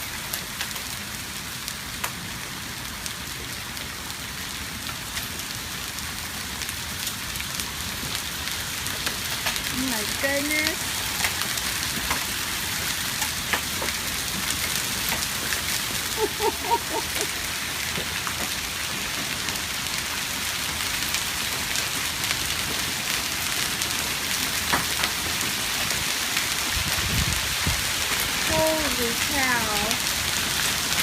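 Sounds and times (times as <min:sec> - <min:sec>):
heavy rain: 0:00.0 - 0:31.0
hailstones striking hard surface: 0:07.9 - 0:31.0.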